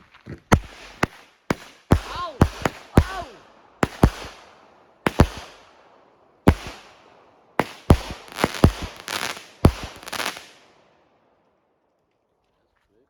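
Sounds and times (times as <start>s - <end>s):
fireworks crackling: 0.5s - 10.9s
fireworks bangs: 0.5s - 11.1s.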